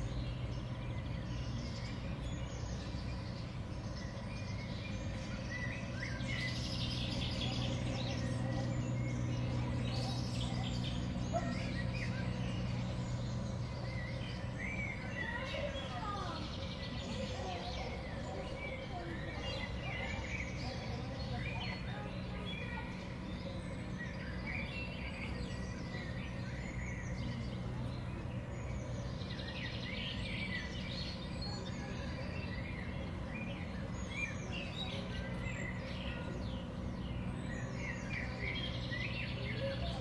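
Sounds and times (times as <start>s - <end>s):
songbirds chirping: 0.0s - 40.0s.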